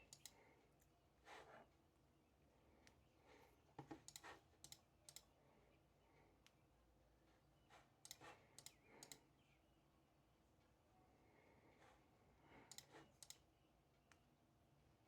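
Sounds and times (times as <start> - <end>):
faint clicking and tapping: 0.0 - 0.9, 2.8 - 5.3.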